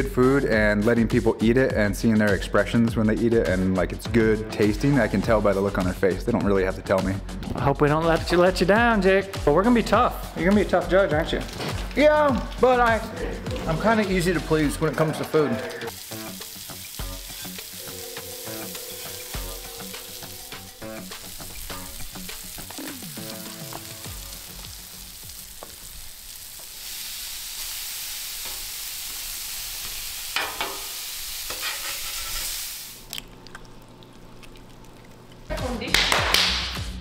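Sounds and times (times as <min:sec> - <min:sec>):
burger patties sizzling on griddle: 0:15.9 - 0:33.0.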